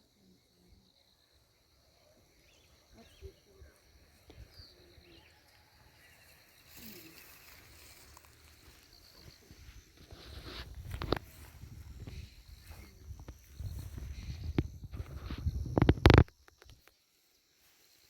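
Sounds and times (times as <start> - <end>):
faint bird chirps: 0.0 - 8.0
insect drone: 0.0 - 18.0
low thumps and rustles: 9.5 - 16.3.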